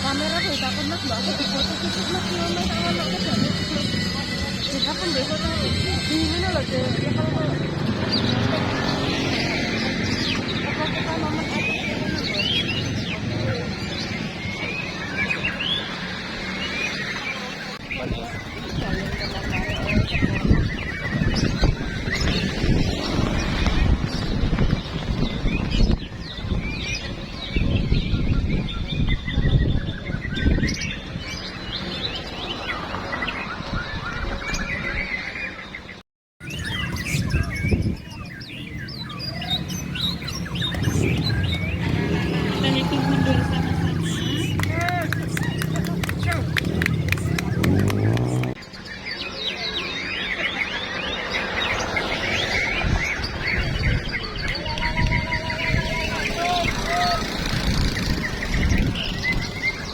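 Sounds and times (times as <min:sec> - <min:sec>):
birds singing chirps and trills: 0:00.0 - 0:59.9
low rumbling noise: 0:39.4 - 0:48.6.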